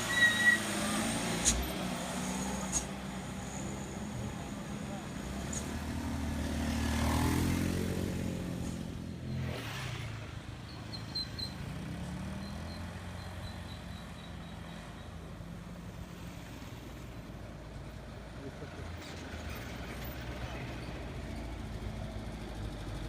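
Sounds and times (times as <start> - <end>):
vehicle engine passing by: 0.0 - 10.6.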